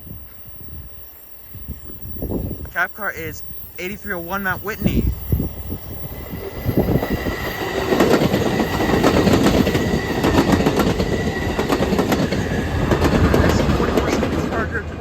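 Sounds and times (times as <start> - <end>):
train rumble: 0.0 - 15.0
train wheels clacking over rails: 6.1 - 14.9.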